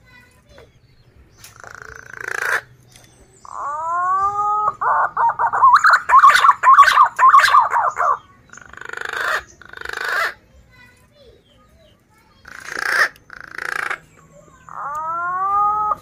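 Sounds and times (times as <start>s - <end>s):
rough breathy bird calls: 1.4s - 2.7s, 3.4s - 10.4s
pigeon whistling and warbling: 3.4s - 8.3s, 14.6s - 16.0s.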